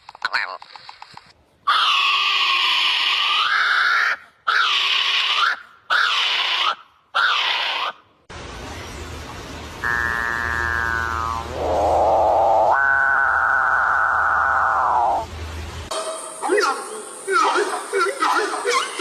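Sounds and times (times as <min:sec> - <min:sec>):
bird screeching: 0:01.7 - 0:08.0.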